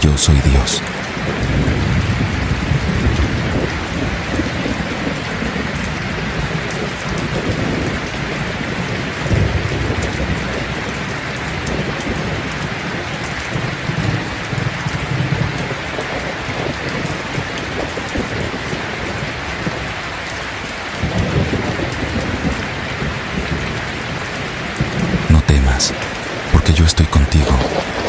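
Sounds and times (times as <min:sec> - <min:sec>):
steady rain: 0:00.0 - 0:28.0
low rumbles of thunder: 0:09.3 - 0:11.0.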